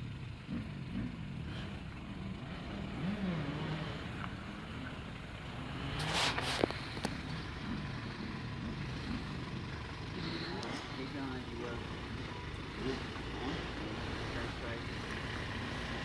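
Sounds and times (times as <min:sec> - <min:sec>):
truck engine pulling at low speed: 0:00.0 - 0:16.0
brief rush of noise: 0:06.0 - 0:06.8.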